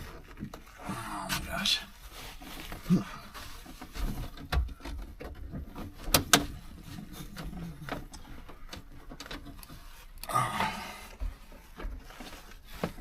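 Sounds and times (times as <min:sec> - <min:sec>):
clicks and knocks of interior trim: 0:03.9 - 0:10.3.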